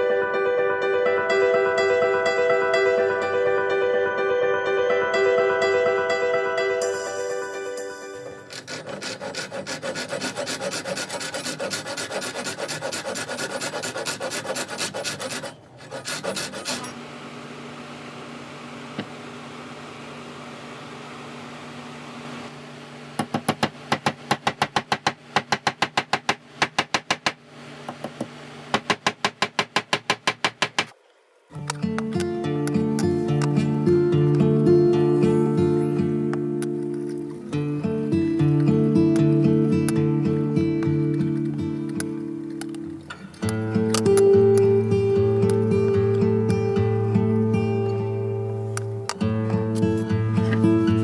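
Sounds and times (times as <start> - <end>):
sanding wooden handle: 8.5 - 16.9.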